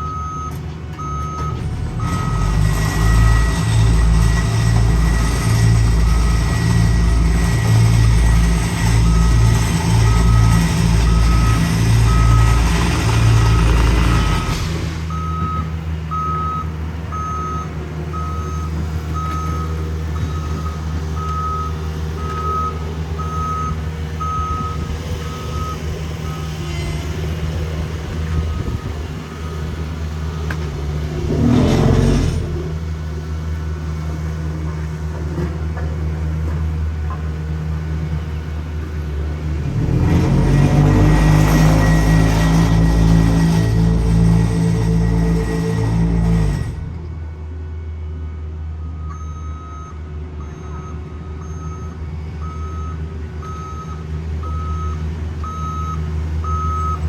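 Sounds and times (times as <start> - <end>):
diesel engine drone: 0.0 - 57.0
backup alarm beeping: 14.4 - 26.5.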